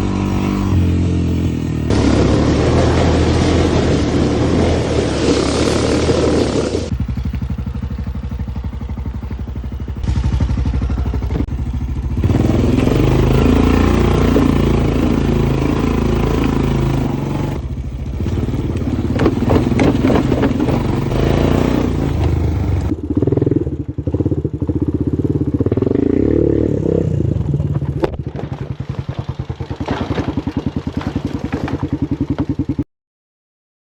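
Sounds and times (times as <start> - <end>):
dirt bike engine revving: 0.0 - 32.8
rattling and clattering: 18.2 - 22.9.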